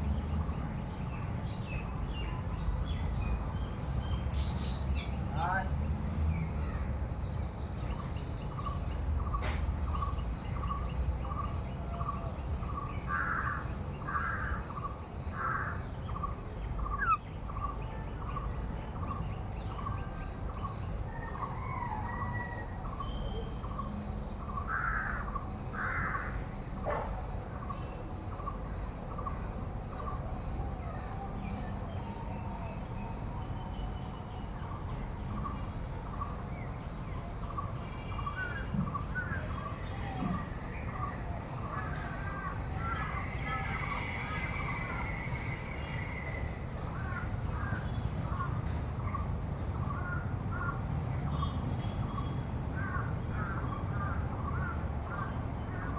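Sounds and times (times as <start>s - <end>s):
crows cawing: 13.1s - 14.7s, 24.7s - 26.4s.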